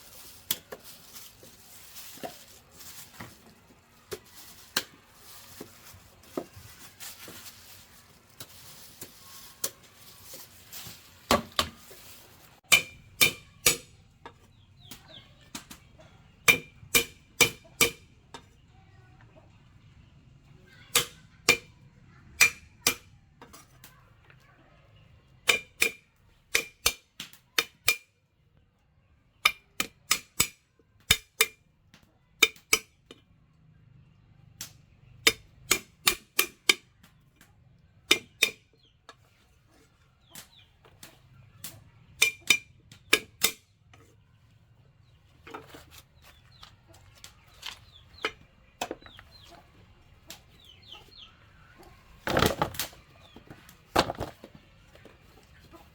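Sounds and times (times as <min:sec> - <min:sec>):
faint chicken clucking: 0:43.9 - 0:52.2, 0:54.6 - 0:55.9.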